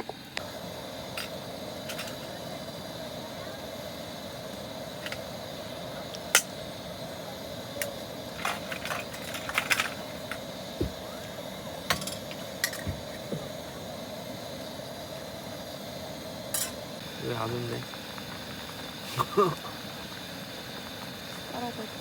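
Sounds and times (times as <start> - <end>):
steady low hiss: 0.0 - 22.0
cooking utensils and dishes clinking: 1.1 - 2.4, 7.8 - 10.5, 11.8 - 13.2, 16.5 - 16.8.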